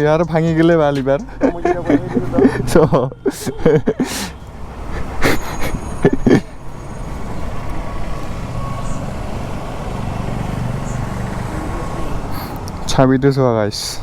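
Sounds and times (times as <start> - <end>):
vehicle engine humming: 0.0 - 13.3.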